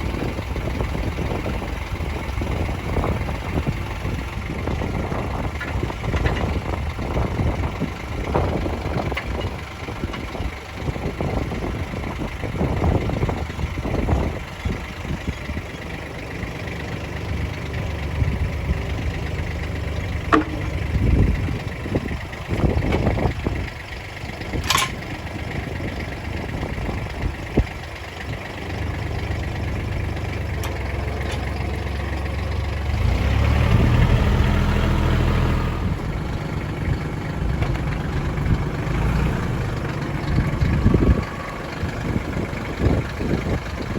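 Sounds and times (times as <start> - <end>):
tractor engine running: 0.0 - 43.9
knocks and clanks: 20.2 - 21.1, 24.6 - 25.0.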